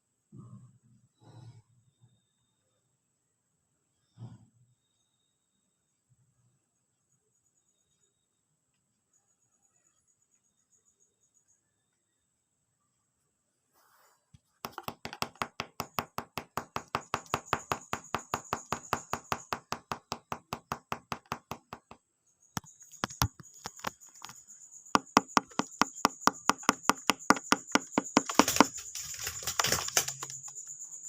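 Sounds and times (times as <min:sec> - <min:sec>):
bird beak tapping on hard object: 0:14.6 - 0:22.0, 0:22.6 - 0:24.4, 0:25.0 - 0:30.6.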